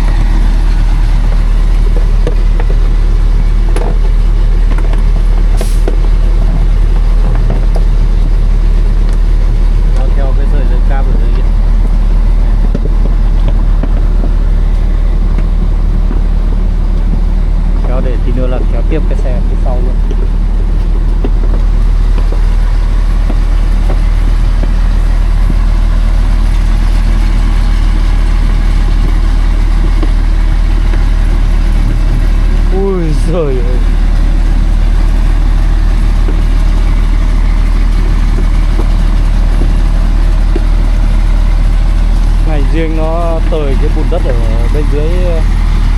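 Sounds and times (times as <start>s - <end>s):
truck engine droning: 0.0s - 45.9s.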